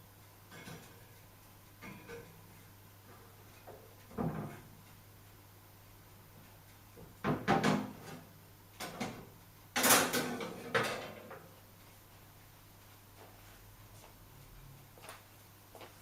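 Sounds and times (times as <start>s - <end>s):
washing machine clunks and knocks: 4.2s - 4.6s, 7.2s - 8.2s, 8.8s - 11.2s.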